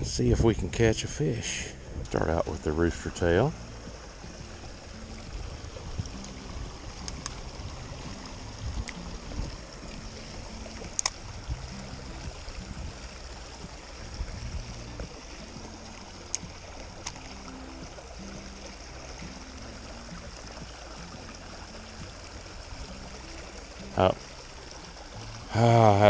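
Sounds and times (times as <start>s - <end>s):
creek water running: 0.0s - 26.0s
wind rumble on microphone: 0.0s - 26.0s
sharp clicks: 2.1s - 11.5s.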